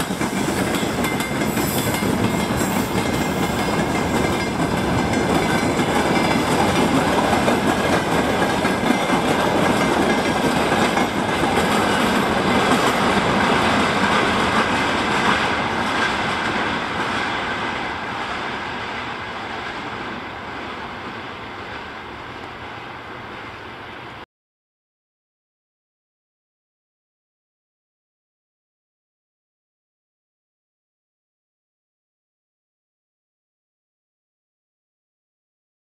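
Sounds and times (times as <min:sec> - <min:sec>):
freight train wheels clattering: 0:00.0 - 0:18.8.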